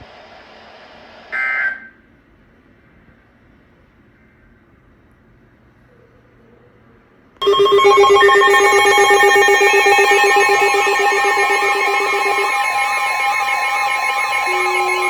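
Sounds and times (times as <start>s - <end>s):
rapid pulsing alarm beep: 7.4s - 15.0s
steady alarm tones: 7.4s - 15.0s
warbling alarm tone: 7.4s - 15.0s.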